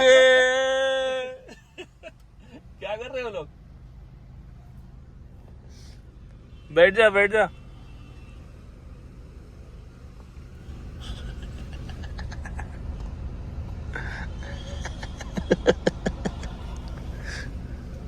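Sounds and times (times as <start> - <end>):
car engine idling: 0.0 - 18.0
engine clicks: 16.1 - 17.1.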